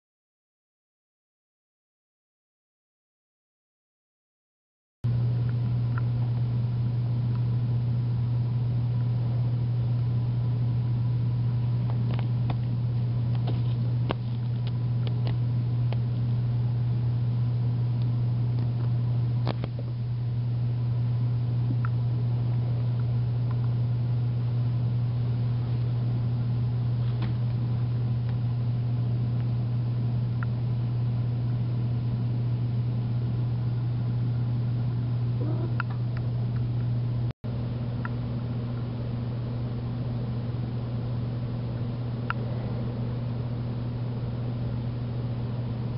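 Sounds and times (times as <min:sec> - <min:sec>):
low mechanical hum: 0:05.0 - 0:45.9.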